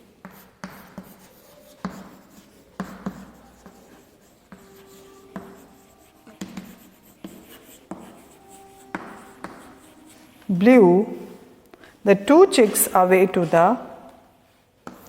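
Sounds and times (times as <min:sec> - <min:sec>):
writing on a board: 0:00.0 - 0:11.4, 0:14.8 - 0:15.0.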